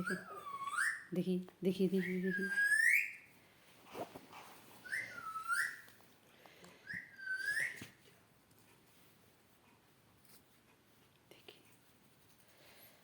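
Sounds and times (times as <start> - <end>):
faint clicks and rustles: 5.7 - 13.0.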